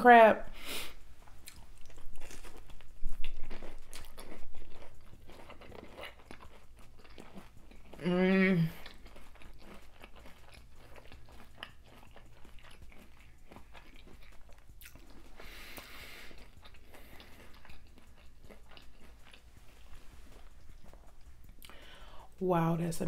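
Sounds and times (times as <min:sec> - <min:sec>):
chewing and crunching: 0:01.2 - 0:22.4.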